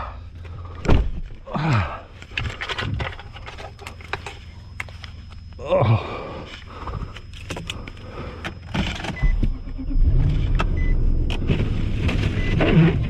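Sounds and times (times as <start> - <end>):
vehicle engine starting and running: 6.5 - 13.0
short high beeps: 7.2 - 11.5, 12.2 - 12.8.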